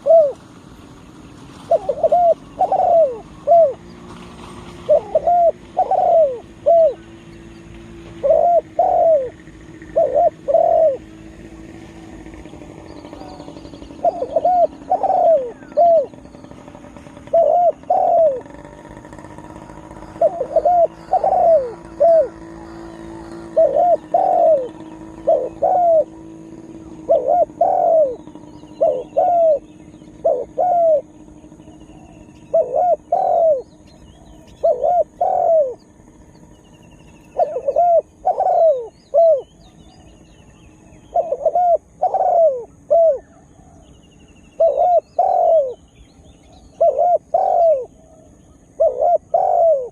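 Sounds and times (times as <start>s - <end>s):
dove cooing: 0.0s - 49.9s
small birds chirping: 0.0s - 49.9s.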